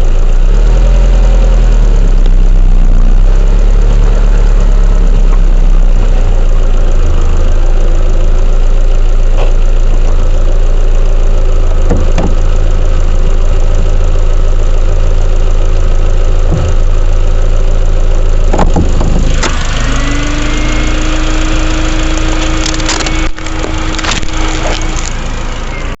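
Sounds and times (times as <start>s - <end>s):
machine droning: 1.2s - 26.0s
steady hum: 20.6s - 26.0s
clicks and creaks: 22.2s - 25.2s.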